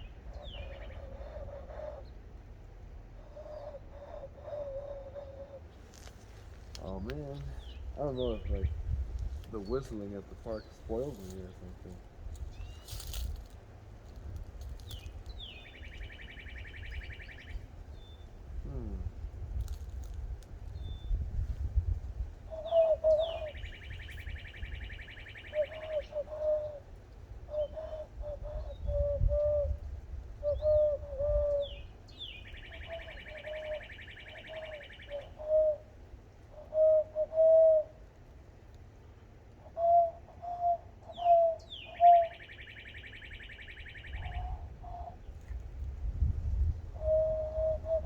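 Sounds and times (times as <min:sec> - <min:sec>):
hand-whistled dove coos: 0:00.4 - 0:02.1, 0:03.2 - 0:06.0, 0:18.7 - 0:19.2, 0:22.5 - 0:26.8, 0:27.5 - 0:29.8, 0:30.4 - 0:31.8, 0:32.5 - 0:35.9, 0:36.6 - 0:38.0, 0:39.6 - 0:45.2, 0:46.9 - 0:48.0.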